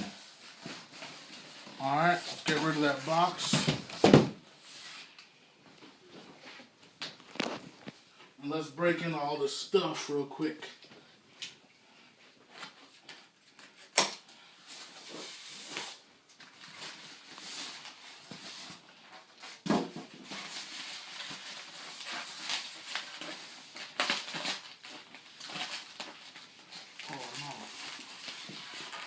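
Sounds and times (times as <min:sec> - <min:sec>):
packaging rustling: 0:07.1 - 0:08.0, 0:14.7 - 0:29.0.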